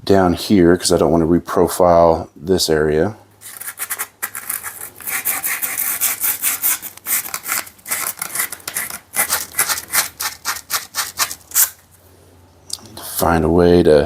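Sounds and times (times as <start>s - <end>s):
sandpaper rubbing on metal: 3.4s - 11.8s.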